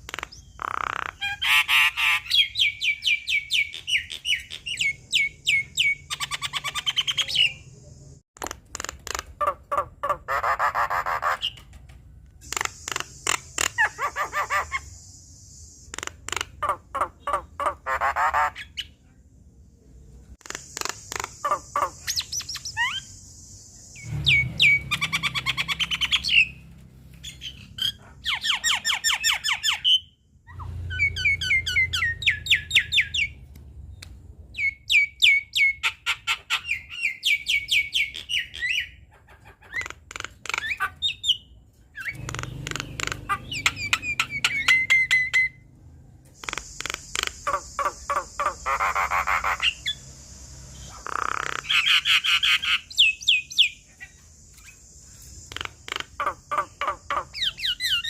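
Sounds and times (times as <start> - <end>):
myna bird singing: 0.0 - 8.2, 8.8 - 19.1, 19.7 - 58.0.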